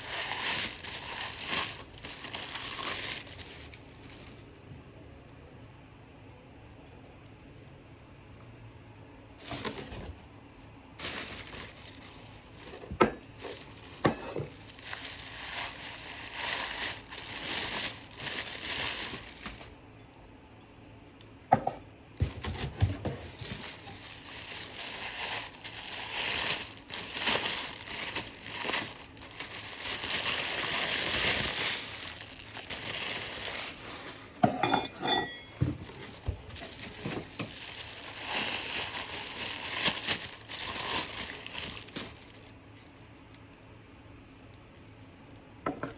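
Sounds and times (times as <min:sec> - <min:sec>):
packing material crinkling: 0:00.0 - 0:04.5, 0:09.4 - 0:10.2, 0:11.0 - 0:19.8, 0:22.2 - 0:34.4, 0:35.5 - 0:42.6
china dishes clinking: 0:34.4 - 0:35.7.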